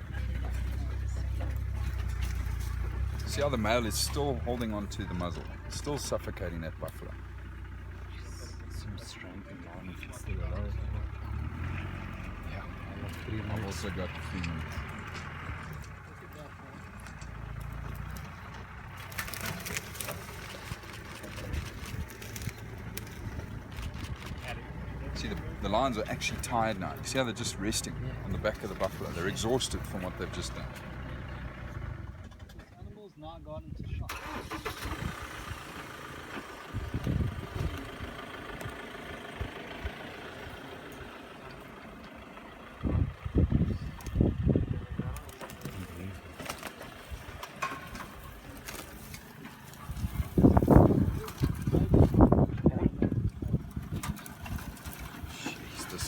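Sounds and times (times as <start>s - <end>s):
low rumbling engine bursts: 0.0s - 32.8s, 33.5s - 56.0s
vehicle engine idling: 0.0s - 56.0s
sharp clicks and rustles: 14.3s - 26.8s, 45.1s - 56.0s.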